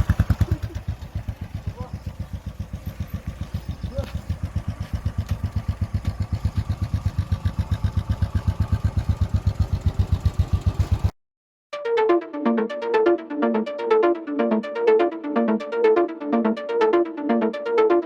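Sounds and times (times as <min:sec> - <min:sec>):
motorcycle engine idling: 0:00.0 - 0:11.1.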